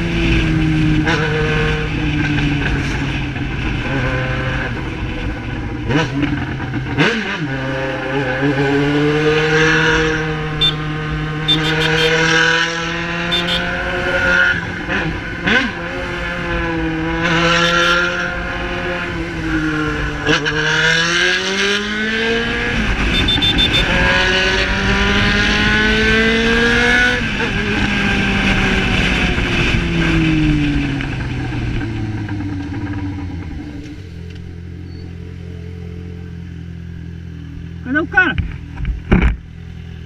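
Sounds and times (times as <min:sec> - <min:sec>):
motorcycle engine cruising: 0:00.0 - 0:40.0.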